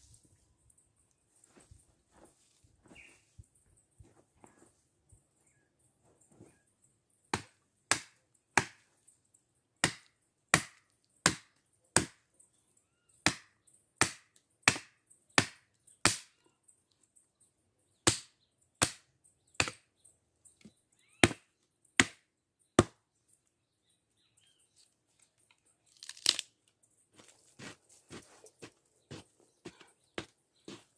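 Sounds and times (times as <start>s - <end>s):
wood chopping strikes: 7.3s - 8.8s, 9.8s - 12.2s, 13.2s - 16.3s, 18.0s - 19.8s, 21.2s - 22.2s, 22.8s - 23.0s.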